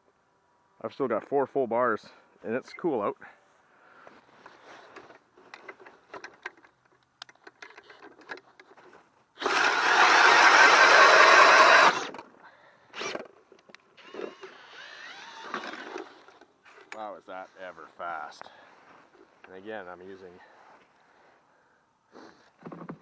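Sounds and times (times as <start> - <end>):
handling clicks and knocks: 4.8 - 9.0
drill spinning ice auger: 9.4 - 12.2, 12.9 - 13.3, 14.0 - 16.4.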